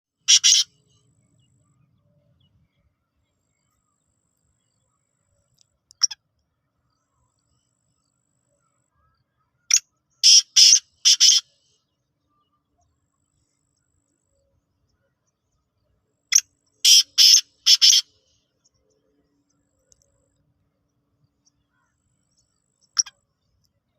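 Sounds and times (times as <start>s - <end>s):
bird harsh chirping calls: 0.2s - 0.9s, 9.7s - 11.6s, 16.3s - 18.1s.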